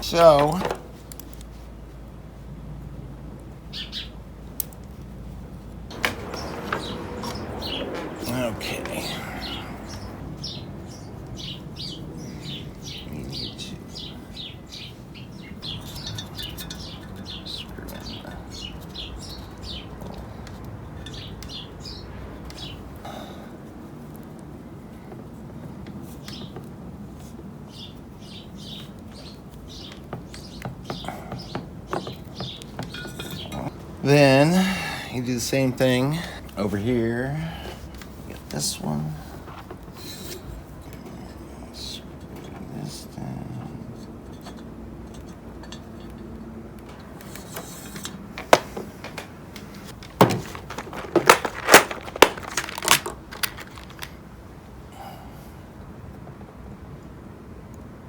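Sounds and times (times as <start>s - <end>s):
small bird chirping: 3.6s - 4.2s, 5.9s - 22.9s, 27.7s - 33.7s
small parts clicking and tapping: 15.6s - 21.6s, 44.2s - 54.2s.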